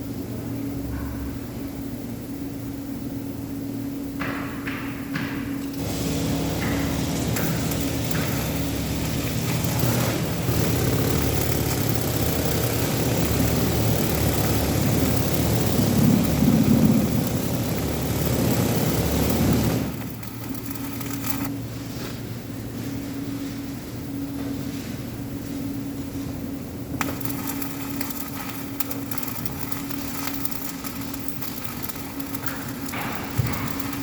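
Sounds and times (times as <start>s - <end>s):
welding arc crackling hiss: 5.6s - 21.6s, 27.0s - 34.0s.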